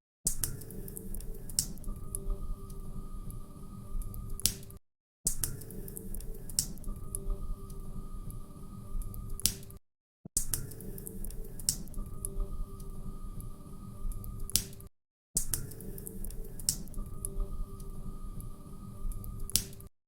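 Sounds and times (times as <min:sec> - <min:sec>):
faint steady hum: 0:00.8 - 0:04.5, 0:05.8 - 0:09.5, 0:11.0 - 0:14.5, 0:15.8 - 0:19.6.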